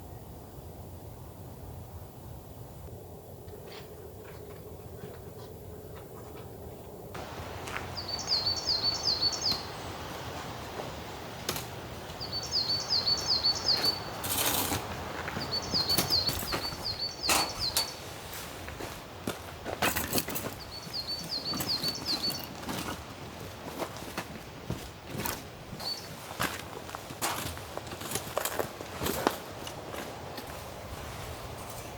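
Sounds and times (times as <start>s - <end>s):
songbird chirping: 6.9s - 19.0s, 20.3s - 22.6s, 25.8s - 26.3s
rain hiss: 7.2s - 19.0s.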